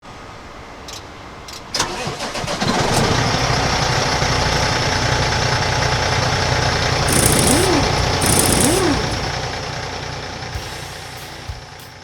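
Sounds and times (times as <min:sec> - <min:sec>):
starter clicks: 0:06.9 - 0:09.3.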